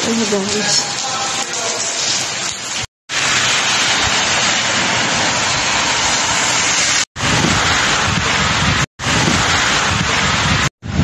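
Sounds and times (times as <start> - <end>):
heavy rain hissing: 0.0 - 11.0.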